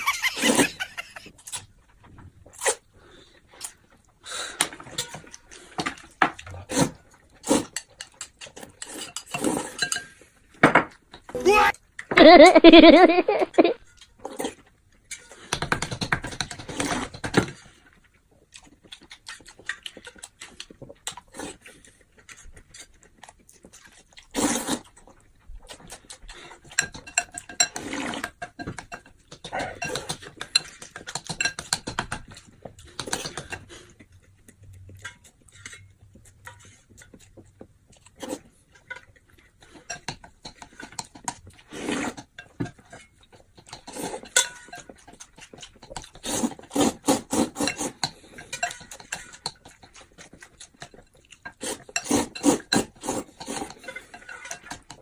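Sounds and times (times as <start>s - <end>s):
tableware clinking on plates: 44.2s - 44.9s.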